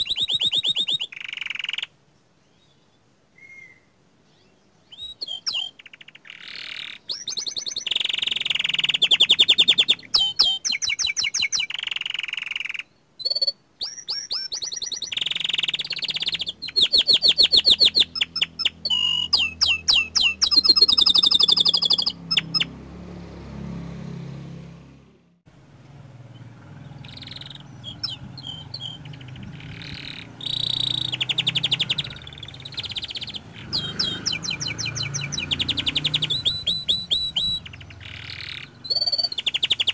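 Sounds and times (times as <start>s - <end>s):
canary singing trills: 0.0s - 22.8s, 26.2s - 39.9s.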